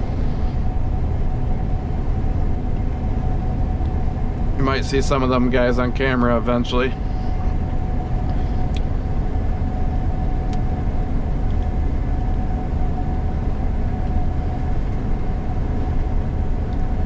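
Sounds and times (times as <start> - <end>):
combine harvester drone: 0.0 - 17.0
constant machine whine: 0.0 - 17.0.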